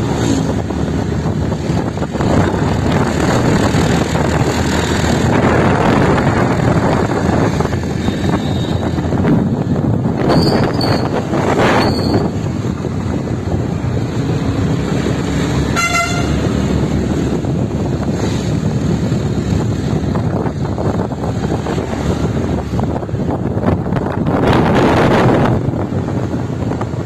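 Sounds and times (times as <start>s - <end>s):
road and vehicle noise: 0.0s - 27.0s
wind buffeting microphone: 0.0s - 27.0s
vehicle horn toot: 15.7s - 16.5s.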